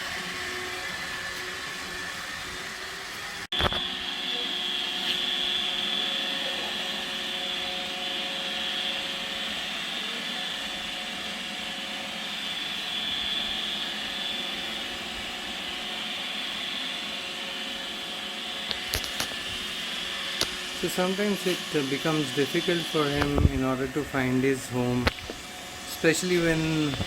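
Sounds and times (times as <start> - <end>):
robot vacuum whirring: 0.0 - 27.0.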